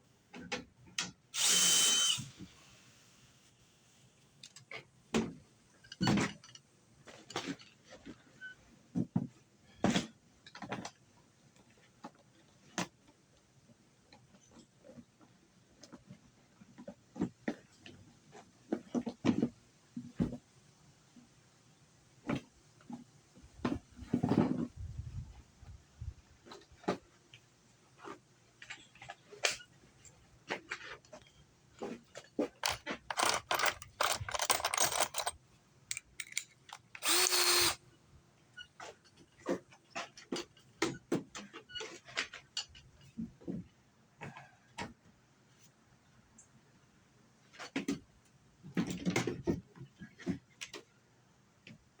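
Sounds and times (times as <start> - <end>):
power drill whirring: 1.4 - 3.0, 32.6 - 37.8
hard objects knocking and clicking: 32.6 - 37.8.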